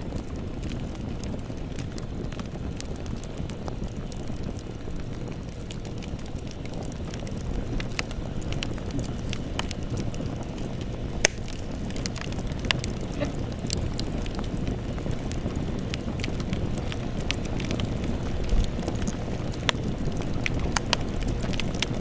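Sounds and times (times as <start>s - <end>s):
flames rumbling: 0.0s - 22.0s
wood crackling and popping: 0.0s - 22.0s.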